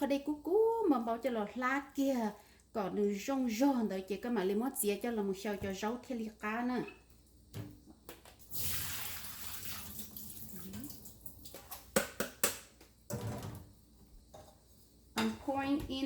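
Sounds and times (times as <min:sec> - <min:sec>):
hot water pouring hiss: 0:08.4 - 0:11.5.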